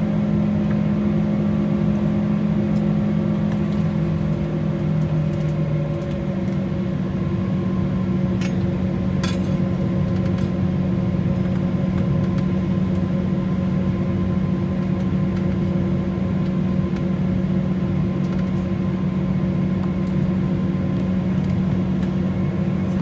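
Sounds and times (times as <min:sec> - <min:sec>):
airliner cabin hum: 0:00.1 - 0:23.0.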